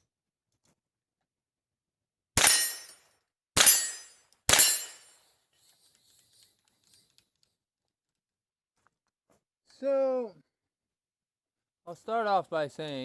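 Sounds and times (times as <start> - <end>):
rifle shots with echo: 2.4 - 2.9, 3.6 - 5.1.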